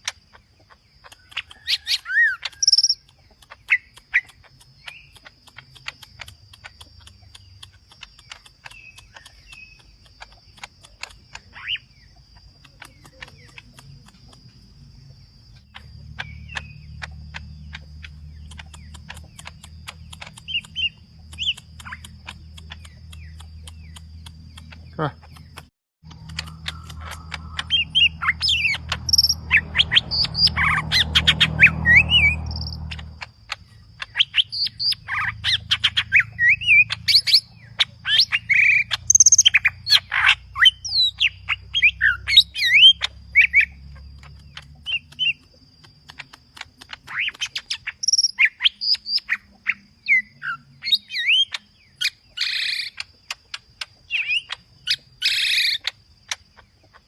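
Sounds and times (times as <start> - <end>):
bird singing whistles and chirps: 15.5 - 56.4.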